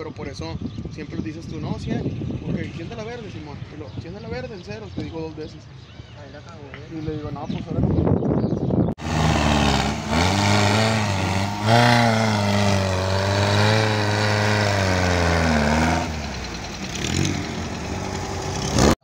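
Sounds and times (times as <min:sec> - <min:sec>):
off-road vehicle engine revving: 0:09.0 - 0:19.0.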